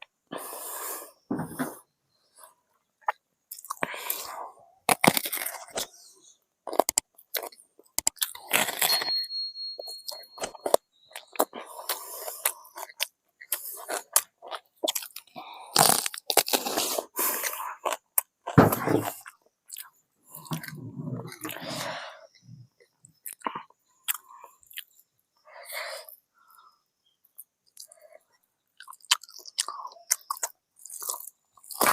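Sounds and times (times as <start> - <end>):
crunching fried chicken: 4.8 - 5.9, 6.6 - 9.1, 10.6 - 19.9, 28.8 - 31.9
wet chewing: 28.8 - 31.9.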